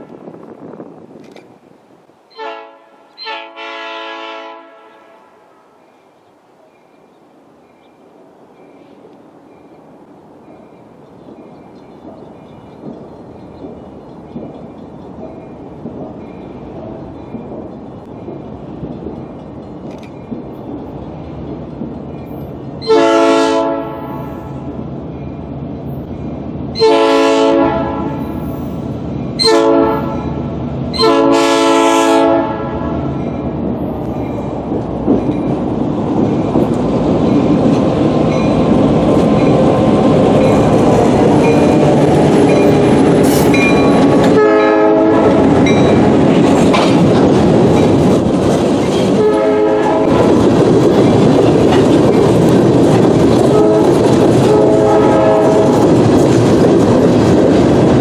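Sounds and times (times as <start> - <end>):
diesel locomotive engines: 0.0 - 58.0
locomotive air horn: 2.3 - 5.7, 22.8 - 24.7, 26.8 - 28.4, 29.4 - 30.4, 31.0 - 33.2, 44.3 - 45.6, 49.2 - 50.3, 53.5 - 55.8
freight train wheels clattering: 10.4 - 26.9, 32.3 - 58.0.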